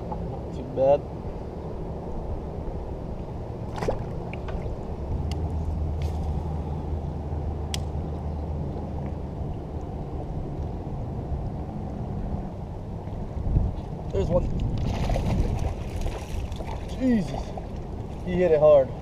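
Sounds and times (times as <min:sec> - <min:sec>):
engine droning: 0:00.0 - 0:14.3.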